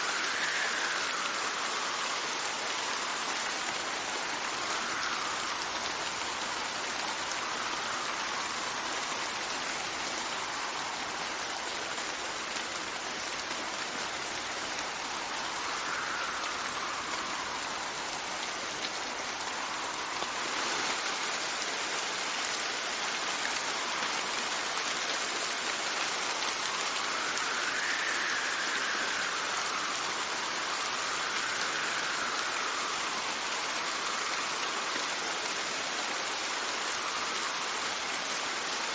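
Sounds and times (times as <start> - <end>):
steady rain falling: 0.0 - 38.9
wind gusts: 0.0 - 38.9.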